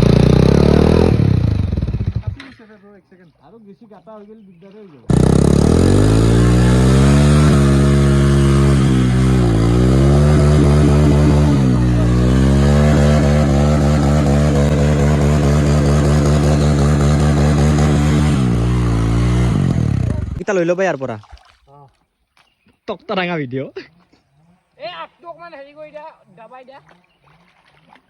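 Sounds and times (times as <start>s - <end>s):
motorcycle engine revving: 0.0s - 2.5s, 5.1s - 20.4s.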